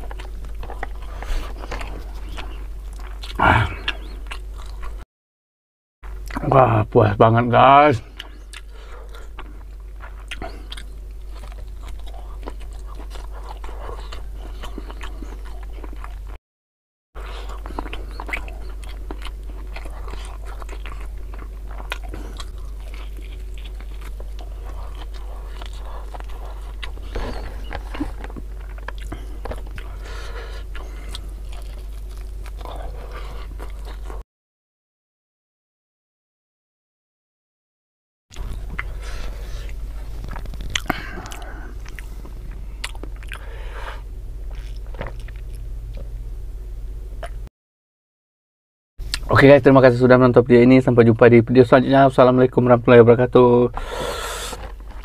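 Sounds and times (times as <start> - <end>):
man chewing food: 0.0 - 5.0, 6.0 - 6.5, 8.0 - 16.4, 17.2 - 34.2, 38.3 - 46.4, 49.0 - 49.3, 53.7 - 55.0
steady low hum: 0.0 - 5.0, 6.0 - 16.4, 17.2 - 34.2, 38.3 - 47.5, 49.0 - 55.0.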